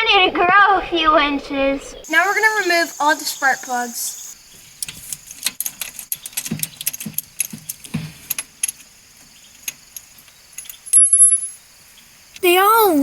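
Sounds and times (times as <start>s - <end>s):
metal tools clicking and clinking: 9.6s - 11.6s.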